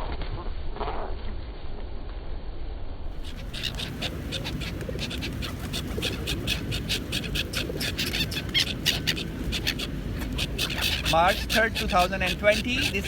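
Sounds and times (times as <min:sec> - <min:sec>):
birds flapping wings: 0:03.2 - 0:13.0.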